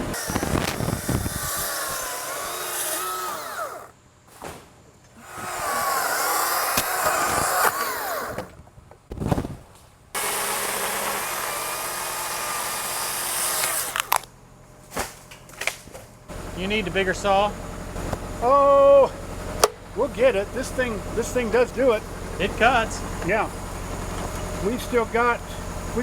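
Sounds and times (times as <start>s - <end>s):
battery chainsaw cutting wood: 0.0s - 4.0s, 5.2s - 8.6s, 10.2s - 14.3s.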